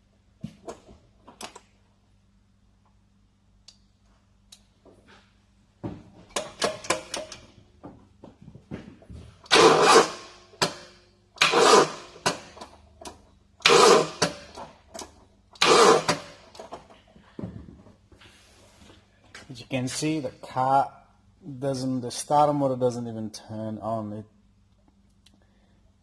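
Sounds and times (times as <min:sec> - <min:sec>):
car starter motor cranking: 0:09.4 - 0:10.7, 0:11.4 - 0:12.6, 0:13.6 - 0:14.6, 0:15.6 - 0:16.6.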